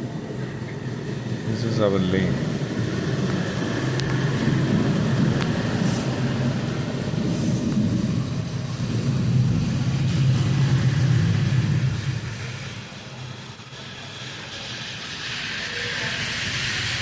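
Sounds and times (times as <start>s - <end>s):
rain hissing: 0.0s - 17.0s
vehicle engine running: 2.0s - 14.7s.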